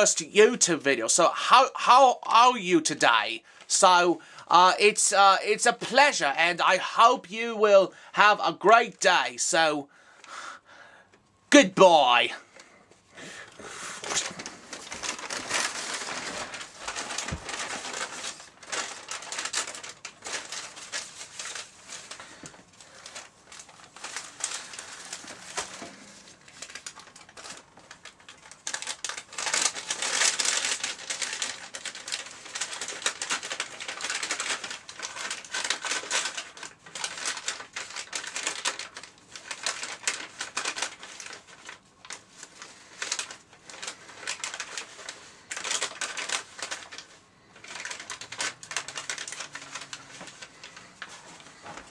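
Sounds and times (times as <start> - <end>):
paper bags crinkling: 13.4 - 51.9.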